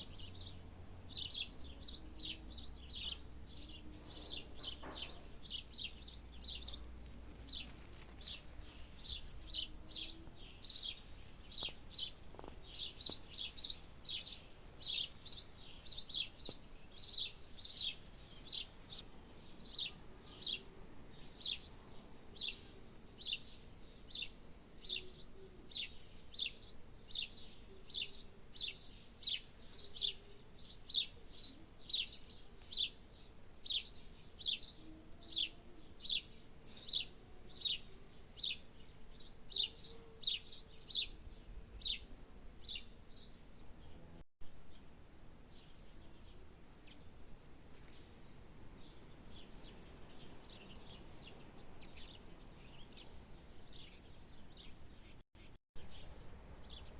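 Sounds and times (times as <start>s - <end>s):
small bird chirping: 0.0s - 19.0s, 22.4s - 41.2s.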